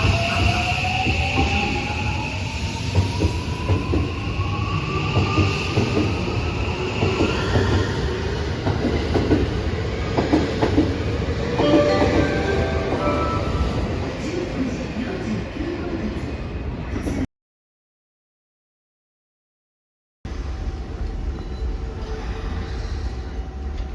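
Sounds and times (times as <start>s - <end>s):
train rumbling on rails: 0.0s - 17.2s.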